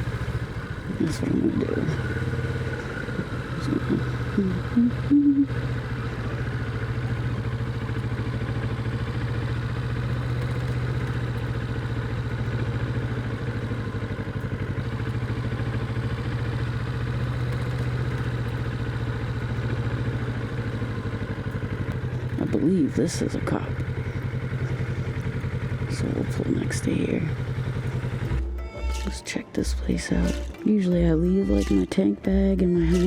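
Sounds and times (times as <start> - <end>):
motorcycle engine idling: 0.0 - 33.0
short high-pitched sounds: 28.4 - 32.0.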